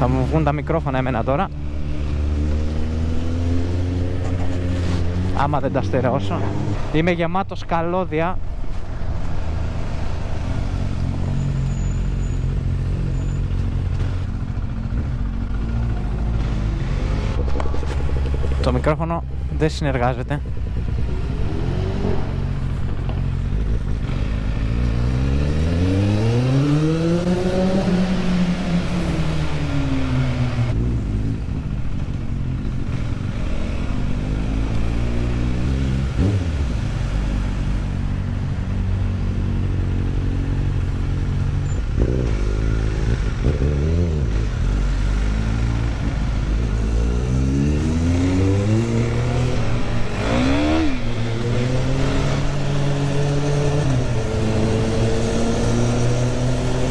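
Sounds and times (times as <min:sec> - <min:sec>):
steady rushing noise: 0:15.2 - 0:24.6
engine revving through gears: 0:15.7 - 0:31.4, 0:41.7 - 0:56.9.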